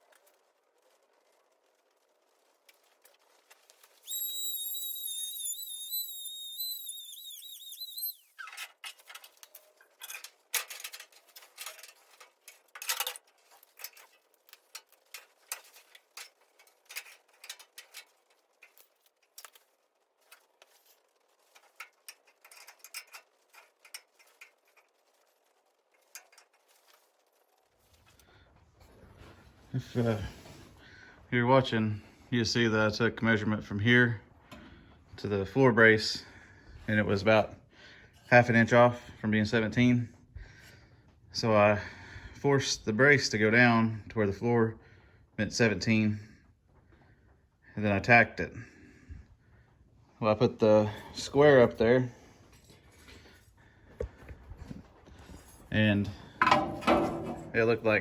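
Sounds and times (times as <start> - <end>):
power tool high-pitched whine: 4.1 - 8.3.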